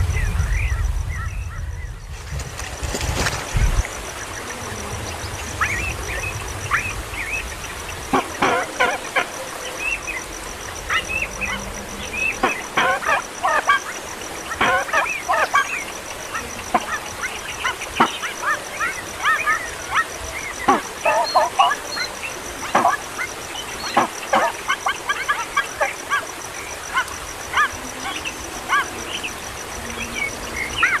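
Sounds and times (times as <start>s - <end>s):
bird chicks chirping: 0.0s - 31.0s.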